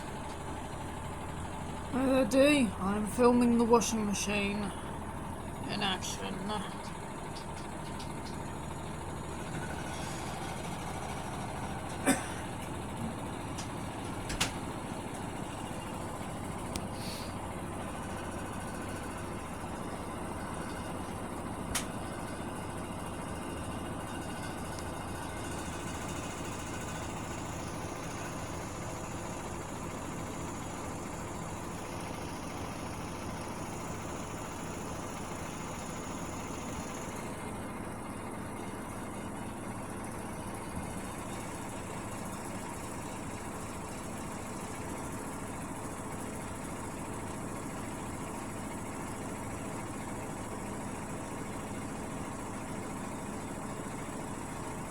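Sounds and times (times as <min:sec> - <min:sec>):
washing machine humming: 0:00.0 - 0:54.9.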